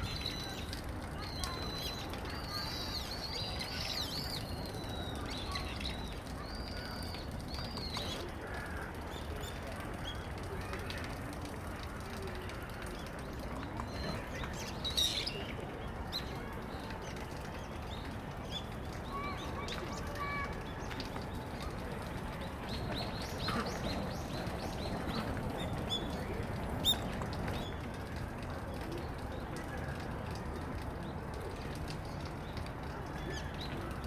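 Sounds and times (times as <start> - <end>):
small birds chirping: 12.8 - 29.6.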